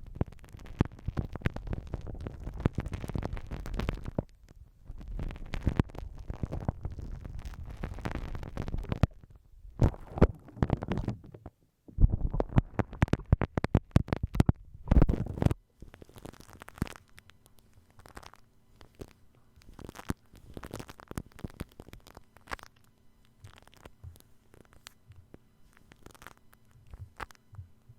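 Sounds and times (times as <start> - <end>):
shaving cream fine crackling: 0.0 - 11.2, 12.4 - 27.6
slime squished wet crackling: 15.9 - 17.3, 17.9 - 25.0, 25.8 - 27.4.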